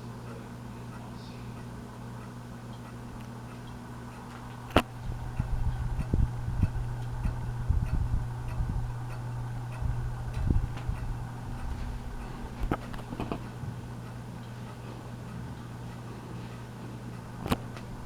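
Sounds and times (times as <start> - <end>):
ceiling fan motor hum: 0.0 - 18.0
light ticking and knocks: 1.6 - 18.0
sharp clicks: 4.7 - 11.7.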